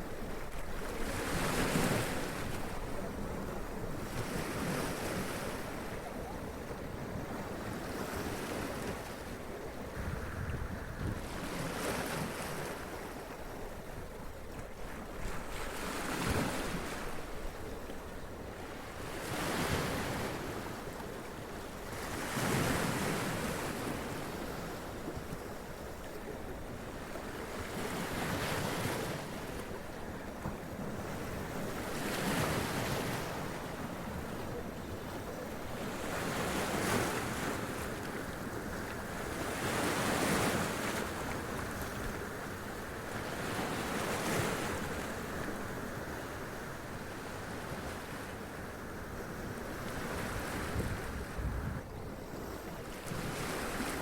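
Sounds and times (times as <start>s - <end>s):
wind noise on microphone: 9.9s - 11.6s, 50.2s - 52.0s.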